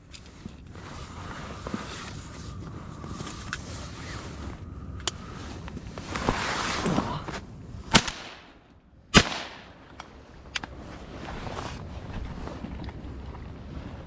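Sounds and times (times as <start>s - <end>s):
shotgun shots echoing: 7.9s - 9.8s.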